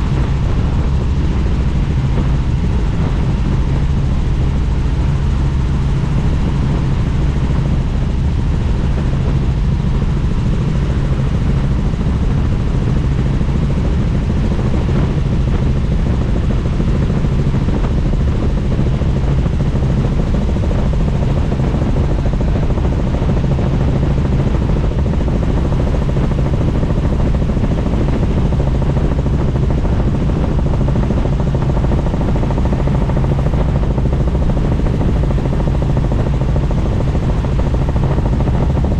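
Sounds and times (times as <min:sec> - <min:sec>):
wind rushing: 0:00.0 - 0:07.0
helicopter rotor and engine: 0:00.0 - 0:38.9.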